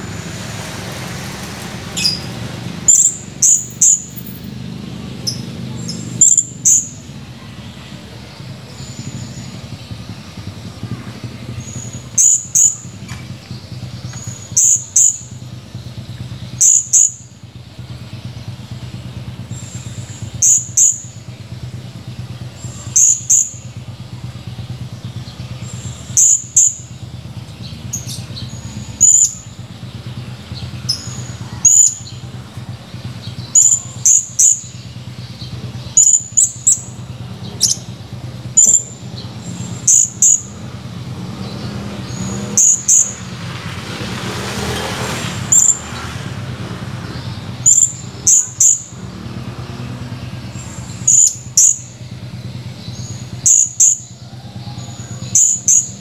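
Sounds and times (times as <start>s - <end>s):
parrot high call notes: 2.0s - 4.4s, 5.2s - 7.1s, 11.6s - 13.0s, 14.2s - 15.3s, 16.5s - 17.3s, 19.8s - 21.2s, 22.6s - 23.8s, 25.8s - 26.9s, 28.0s - 29.5s, 30.8s - 32.2s, 33.5s - 34.8s, 38.5s - 39.1s, 39.8s - 40.6s, 42.1s - 43.2s, 45.5s - 45.8s, 47.6s - 49.0s, 51.0s - 51.9s, 53.1s - 56.0s.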